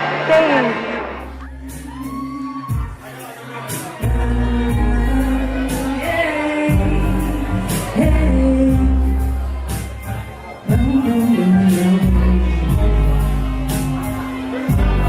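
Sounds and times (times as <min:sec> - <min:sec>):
person singing: 0:00.4 - 0:15.0
deep bass notes: 0:04.0 - 0:15.0.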